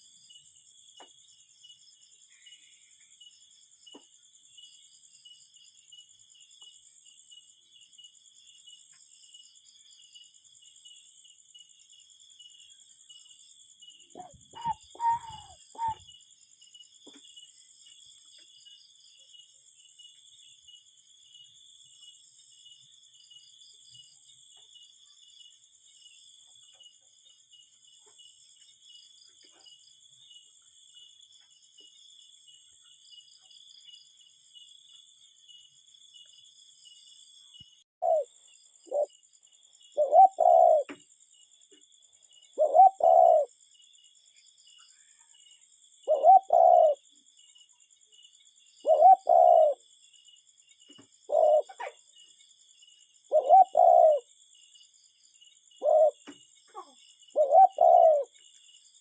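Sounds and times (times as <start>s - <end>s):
cuckoo calling: 14.1s - 16.1s, 38.0s - 38.3s, 40.0s - 41.0s, 42.6s - 43.5s, 46.1s - 47.0s, 48.8s - 49.8s, 51.3s - 52.0s, 53.3s - 54.3s, 55.8s - 58.3s.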